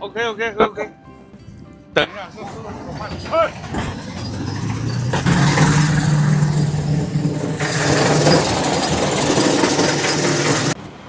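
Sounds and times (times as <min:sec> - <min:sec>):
large engine running: 0:02.3 - 0:11.0.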